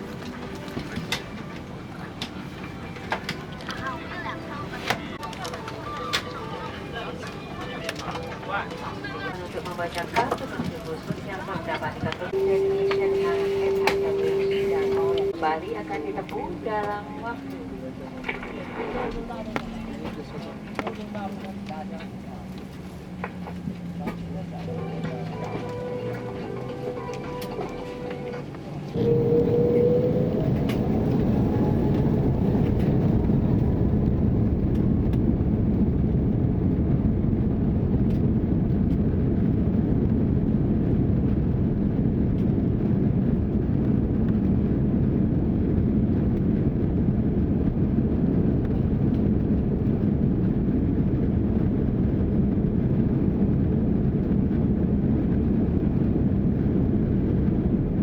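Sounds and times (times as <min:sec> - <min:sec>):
cabin low rumble: 0:08.8 - 0:58.0
jet engines spooling up: 0:12.3 - 0:23.8, 0:28.8 - 0:35.5.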